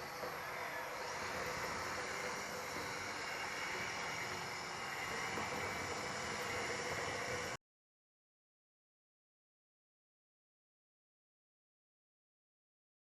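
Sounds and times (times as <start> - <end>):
hydraulic model hiss and whir: 0.0 - 7.6.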